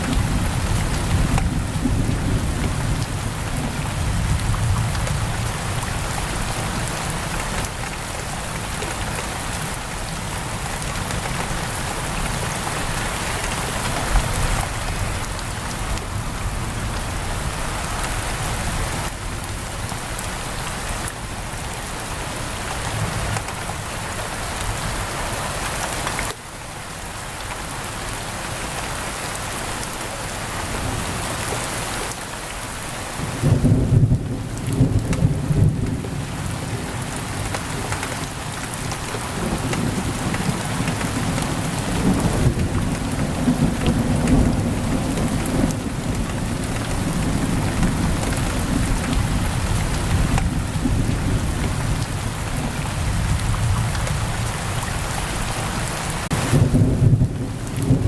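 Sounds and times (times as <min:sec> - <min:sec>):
low rumble of thunder: 0:00.0 - 0:07.0, 0:33.1 - 0:37.5, 0:39.2 - 0:54.8, 0:56.3 - 0:58.0
heavy rain on a window: 0:00.0 - 0:58.0.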